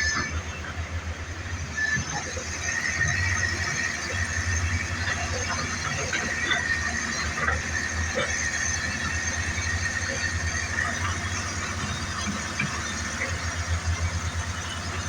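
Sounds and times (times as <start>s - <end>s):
diesel engine rumble: 0.0s - 15.0s.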